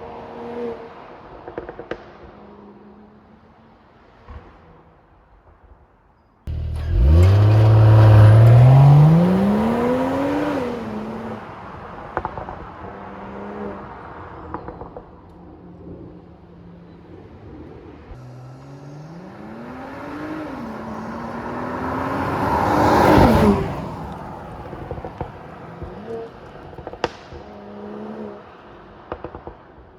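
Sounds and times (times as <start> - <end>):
car engine accelerating hard: 6.5 - 11.7, 18.2 - 28.4.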